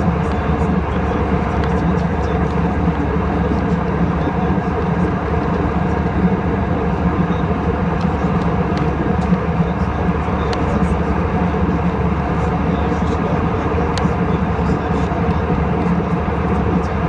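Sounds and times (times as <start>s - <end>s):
airliner cabin noise: 0.0s - 17.0s.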